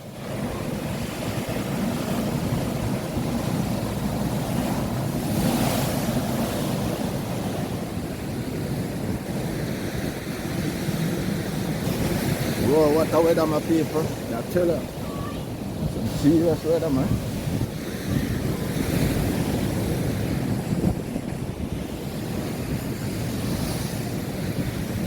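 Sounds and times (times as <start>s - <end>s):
surf breaking on shore: 0.0s - 25.0s
wind buffeting microphone: 0.0s - 25.0s.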